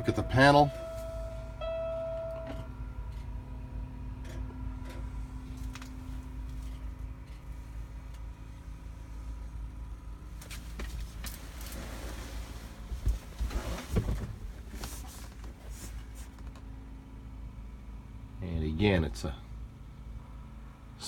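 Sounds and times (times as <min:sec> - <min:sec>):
faint humming tone: 0:00.0 - 0:05.9.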